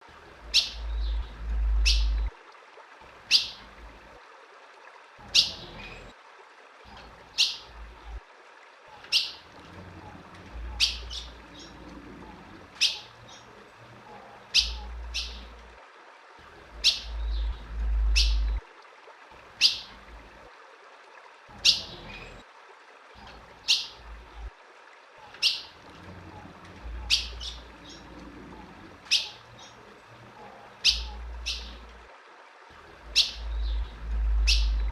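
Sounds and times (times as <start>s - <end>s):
bird chip calls: 0.5s - 2.3s, 3.3s - 3.6s, 9.0s - 9.4s, 10.7s - 11.8s, 12.8s - 13.5s, 14.5s - 15.6s, 16.8s - 18.6s, 27.0s - 28.2s, 29.1s - 29.8s, 30.4s - 31.9s, 33.1s - 34.9s
low rumble: 0.8s - 2.3s, 17.0s - 18.6s, 33.4s - 34.9s.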